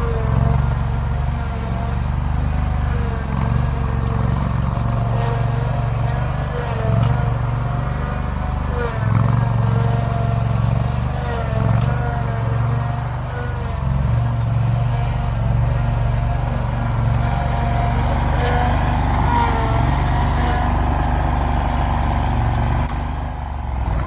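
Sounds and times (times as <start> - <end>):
mower engine running: 0.0 - 24.0.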